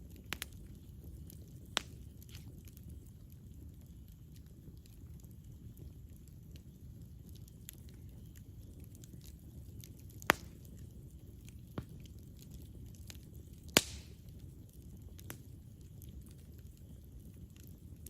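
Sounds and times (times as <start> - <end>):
campfire crackling: 0.0 - 18.0
low rumble of campfire: 0.0 - 18.0
loud sharp pops: 13.8 - 14.2.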